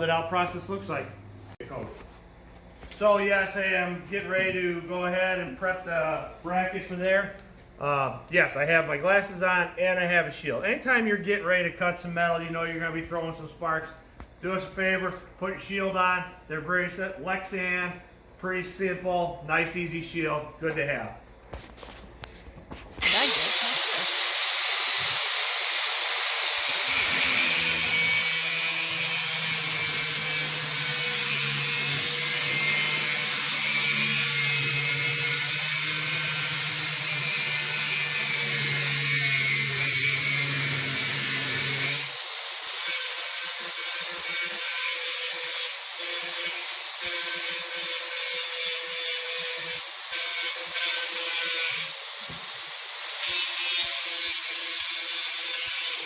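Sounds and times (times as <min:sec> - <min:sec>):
die grinder grinding metal: 0:23.0 - 0:56.0.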